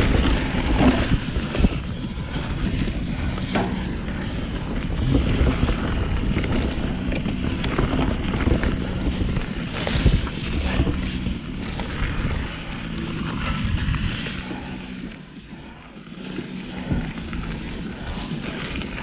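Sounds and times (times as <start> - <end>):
bike knocks and rattles: 0.0 - 14.7
tyres rolling over dirt: 0.0 - 19.0
wind buffeting microphone: 0.0 - 19.0.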